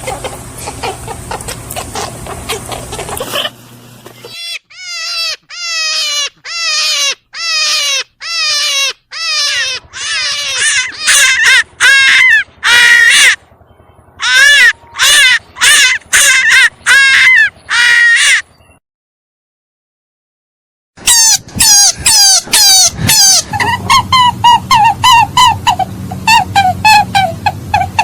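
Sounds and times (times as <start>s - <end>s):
animal giving harsh calls: 0.0s - 3.6s, 4.2s - 13.4s, 14.2s - 18.5s, 21.0s - 28.0s.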